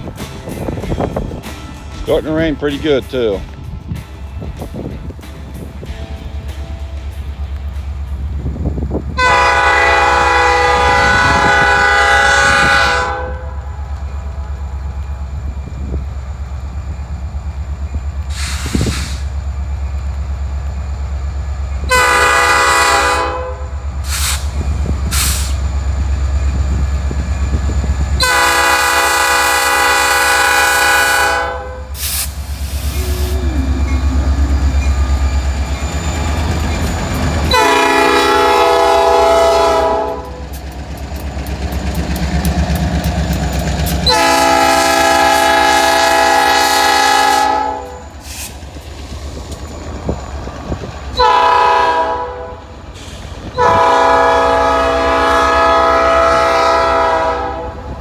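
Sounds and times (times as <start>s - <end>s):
diesel engines rumbling: 0.0s - 58.0s
locomotive air horn blasts: 9.2s - 13.7s, 21.9s - 24.4s, 28.2s - 32.2s, 37.4s - 40.4s, 44.0s - 48.1s, 51.1s - 52.7s, 53.5s - 58.0s
train wheels clattering: 31.9s - 46.5s.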